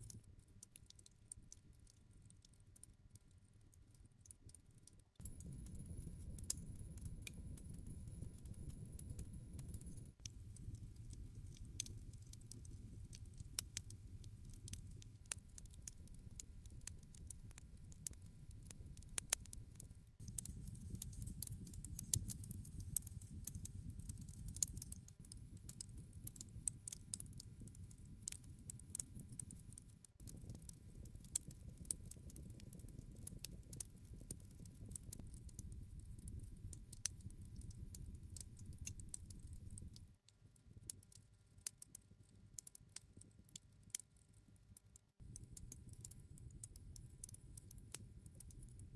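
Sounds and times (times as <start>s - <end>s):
campfire crackling and popping: 0.0s - 3.0s, 4.4s - 42.0s, 45.3s - 48.8s
low rumble of flames: 5.2s - 19.6s, 20.2s - 40.2s.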